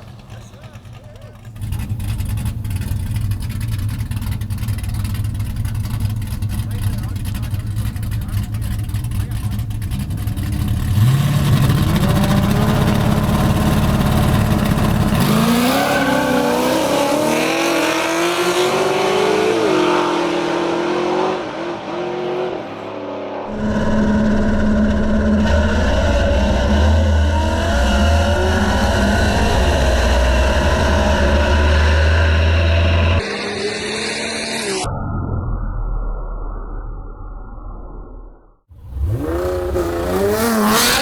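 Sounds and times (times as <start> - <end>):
engine accelerating hard: 0.0 - 34.9, 38.7 - 41.0
engine revving: 0.0 - 34.9, 38.7 - 41.0
race car engines rumbling: 0.0 - 34.9, 38.7 - 41.0.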